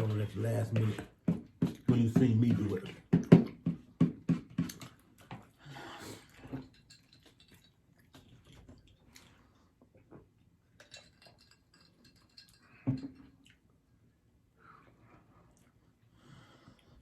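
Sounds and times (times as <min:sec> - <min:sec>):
chewing and mouth sounds: 0:06.2 - 0:11.6, 0:12.2 - 0:13.9, 0:14.8 - 0:17.0.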